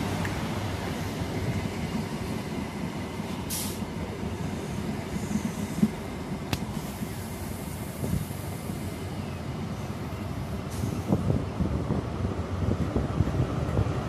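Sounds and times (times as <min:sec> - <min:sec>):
train rumbling slowly: 0:00.0 - 0:14.0
short hiss: 0:03.5 - 0:03.8.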